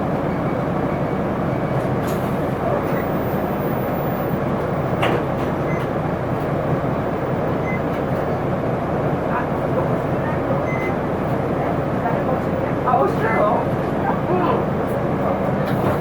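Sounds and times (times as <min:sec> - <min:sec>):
bus diesel engine hum: 0:00.0 - 0:16.0
road noise: 0:00.0 - 0:16.0.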